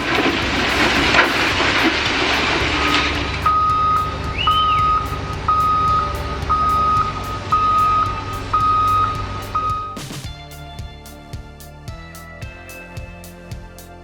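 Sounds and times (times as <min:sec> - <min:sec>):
dense rumbling noise: 0:00.0 - 0:10.1
diesel engine running: 0:00.0 - 0:10.1
reversing alarm beeping: 0:01.6 - 0:10.0.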